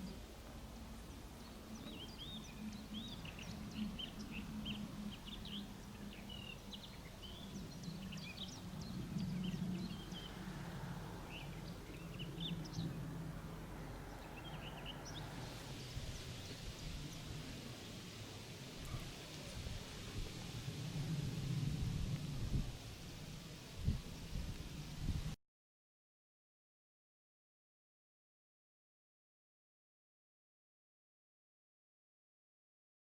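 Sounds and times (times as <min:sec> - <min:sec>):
small birds chirping: 0:00.0 - 0:18.1
soft hiss: 0:13.4 - 0:25.4.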